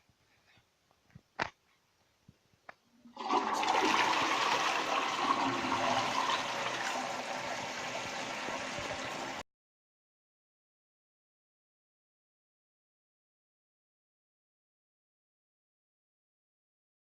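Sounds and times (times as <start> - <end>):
toilet flushing: 3.0 - 9.4.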